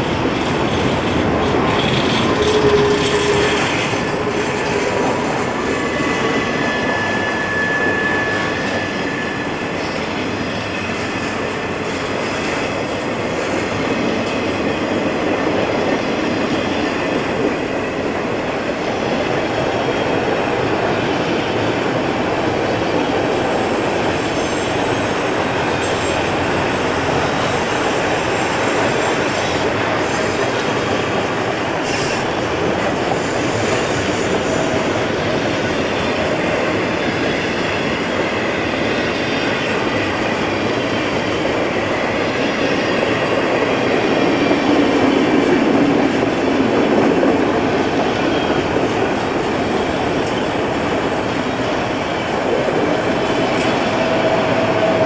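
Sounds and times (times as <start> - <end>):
train wheels rumbling and clattering: 0.0 - 55.0
wheel squeal: 1.4 - 10.0.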